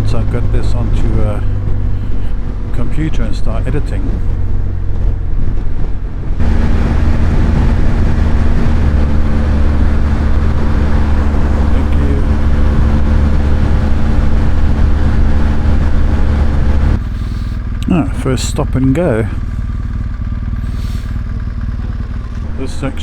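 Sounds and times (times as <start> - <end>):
wind rushing on microphone: 0.0 - 17.8
motorcycle engine droning: 0.0 - 23.0.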